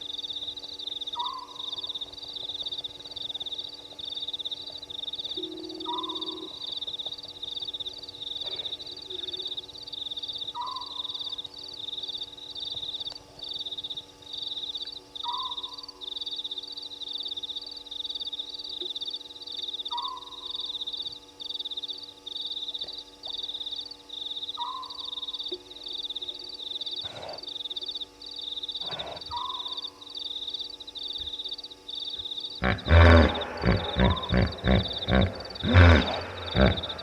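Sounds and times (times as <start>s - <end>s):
rising and falling low call: 32.6s - 37.0s.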